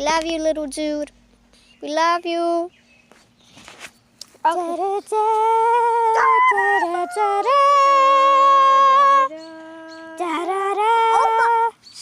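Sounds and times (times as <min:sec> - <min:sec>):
person wailing long notes: 0:05.6 - 0:11.7.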